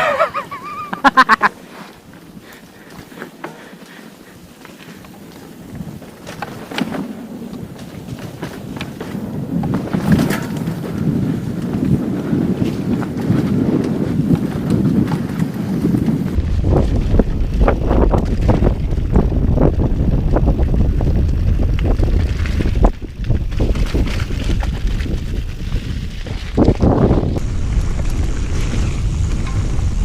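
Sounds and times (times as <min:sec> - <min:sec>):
bike tyre noise: 0:00.0 - 0:30.0
bike knocking and rattling: 0:00.5 - 0:30.0
wind rushing over microphone: 0:05.4 - 0:30.0.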